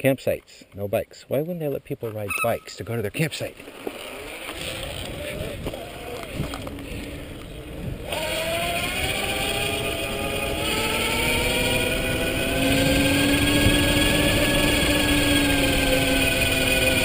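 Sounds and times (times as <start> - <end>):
electric bike motor whining: 3.9 - 17.0
steady rushing noise: 4.6 - 17.0.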